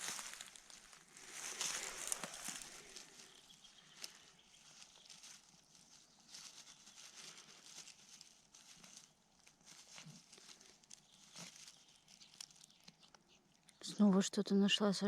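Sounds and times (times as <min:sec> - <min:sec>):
rustling in plants: 0:00.0 - 0:14.0.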